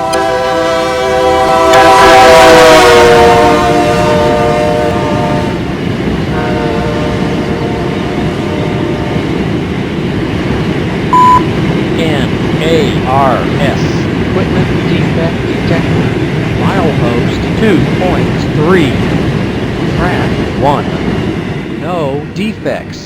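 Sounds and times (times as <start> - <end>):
locomotive air horn chord: 0.0 - 5.7, 6.3 - 9.2
train wheels rumbling: 0.0 - 23.0
short radio beep: 11.2 - 11.4.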